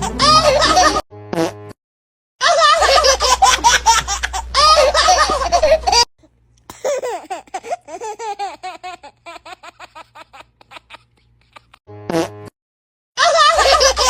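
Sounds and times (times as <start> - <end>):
baby laughing: 0.0 - 1.0, 2.4 - 6.1, 6.7 - 12.2, 13.2 - 14.0.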